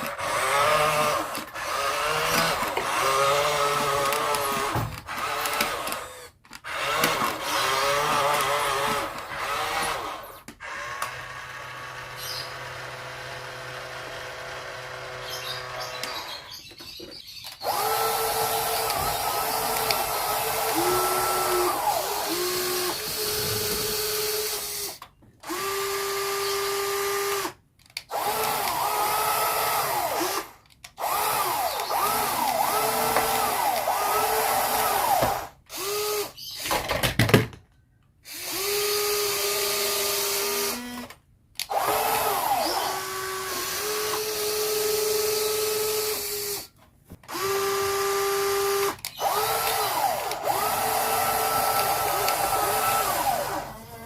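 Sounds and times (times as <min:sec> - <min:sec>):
toy vehicle motors whining: 0:00.0 - 0:37.0, 0:38.2 - 0:54.0.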